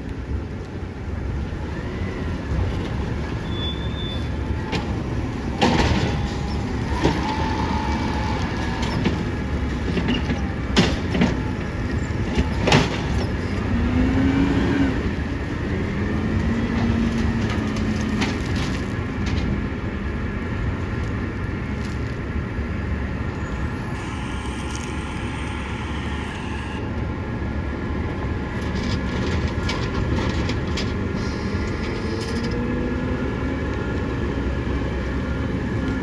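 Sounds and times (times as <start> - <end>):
heavy trucks rumbling: 0.0 - 36.0
short squeals: 3.3 - 4.6, 23.4 - 27.1.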